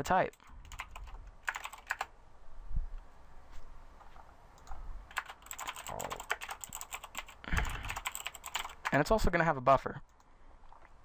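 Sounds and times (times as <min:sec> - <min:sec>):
keyboard typing clicks: 0:00.3 - 0:02.1, 0:04.6 - 0:09.0.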